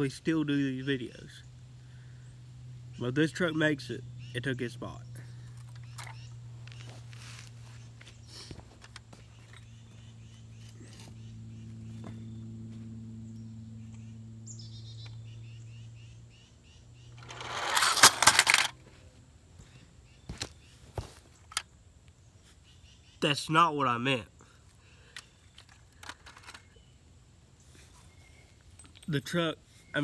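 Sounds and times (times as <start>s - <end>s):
electric motor humming: 17.2s - 18.7s
loud clattering crash: 17.2s - 18.7s.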